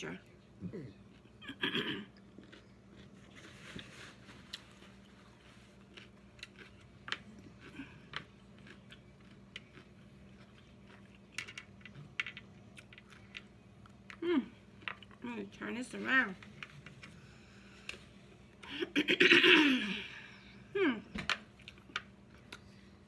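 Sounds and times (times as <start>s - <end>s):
person chewing and crunching food: 0.6s - 15.2s, 21.4s - 23.0s.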